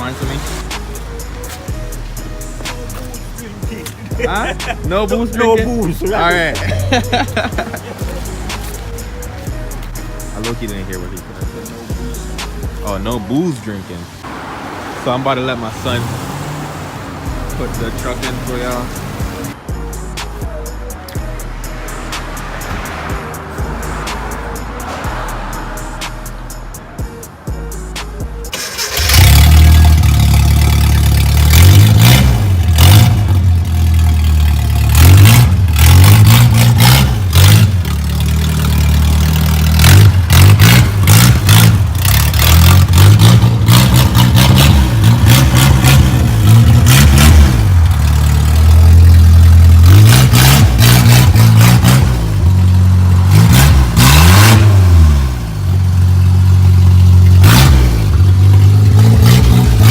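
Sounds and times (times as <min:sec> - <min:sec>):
pickup engine revving: 0:14.0 - 0:20.4, 0:27.8 - 0:59.9.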